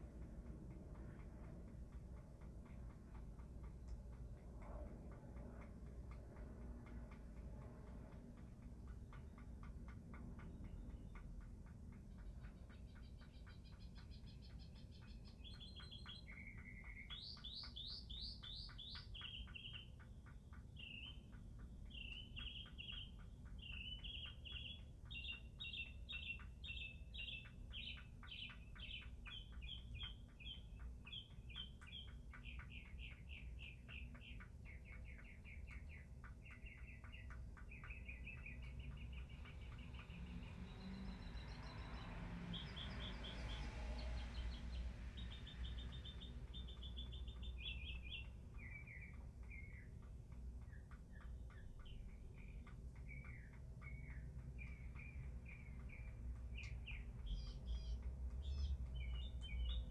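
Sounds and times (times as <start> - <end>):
low background rumble: 0.0 - 59.9
songbird chirping phrases: 12.1 - 59.9.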